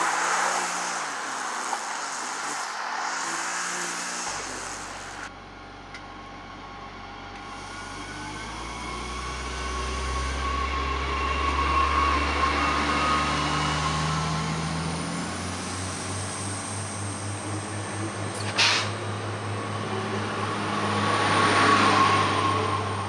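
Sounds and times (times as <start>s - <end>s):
pulsing engine throb: 0.0s - 5.3s
wheel-on-rail noise: 0.0s - 5.3s
train engine: 0.0s - 23.0s.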